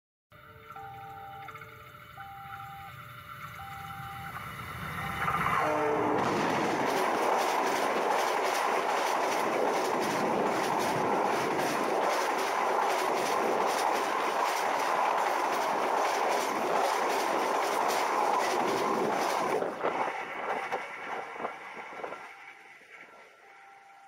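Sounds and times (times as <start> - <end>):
train wheels clattering on rails: 5.0 - 23.1.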